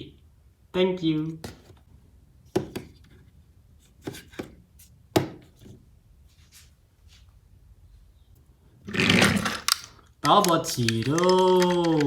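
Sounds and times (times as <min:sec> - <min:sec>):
plastic toys knocking on hard surface: 0:08.9 - 0:12.0.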